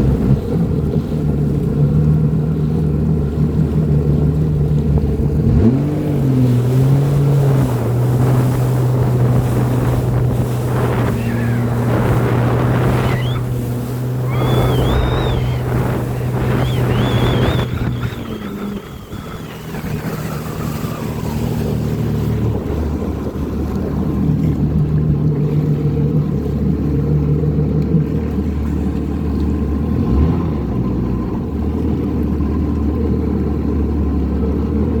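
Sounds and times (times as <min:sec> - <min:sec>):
jet ski engine running: 0:00.0 - 0:35.0
wind noise on microphone: 0:05.0 - 0:25.4.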